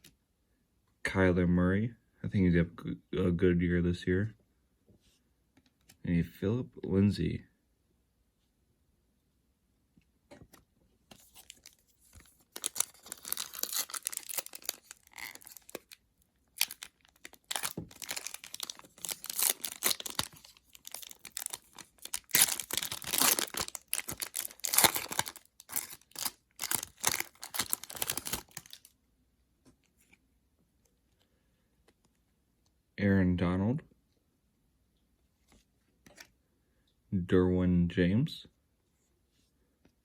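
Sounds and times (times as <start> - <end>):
card pack wrapping tearing: 11.1 - 28.9.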